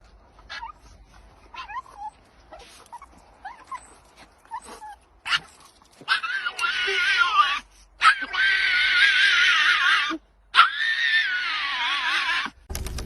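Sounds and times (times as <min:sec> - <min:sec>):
dog whimpering: 0:01.5 - 0:05.5.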